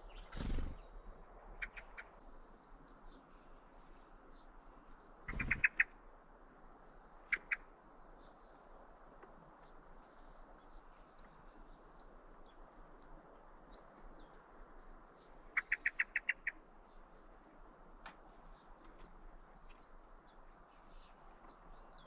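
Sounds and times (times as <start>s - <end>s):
loud bird chirps: 0.0s - 1.0s, 5.2s - 6.0s
songbirds twittering: 0.0s - 22.0s.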